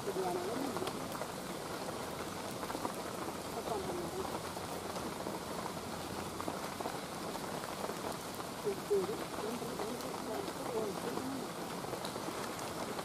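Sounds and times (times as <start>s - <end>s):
rain on foliage: 0.0s - 13.0s.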